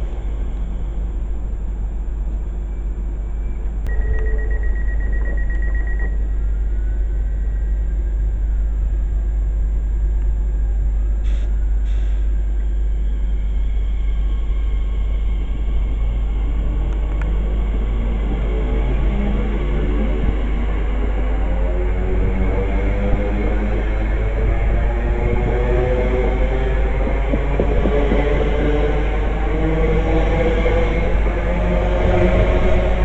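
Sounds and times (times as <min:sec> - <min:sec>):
train rumble: 0:00.0 - 0:33.0
high steady tone: 0:03.9 - 0:06.4
wind noise on microphone: 0:15.3 - 0:33.0.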